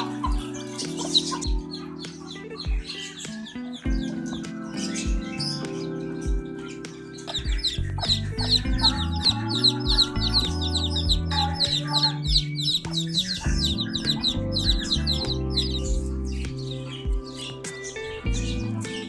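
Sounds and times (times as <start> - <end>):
background music with low notes: 0.0 - 19.0
chicks peeping: 0.0 - 19.0.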